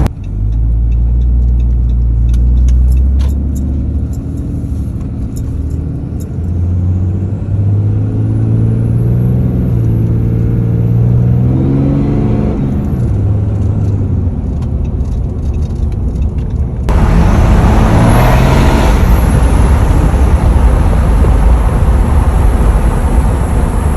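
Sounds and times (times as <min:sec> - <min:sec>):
diesel engine revving: 0:00.0 - 0:14.3, 0:16.8 - 0:23.9
loud rushing noise: 0:16.9 - 0:23.9.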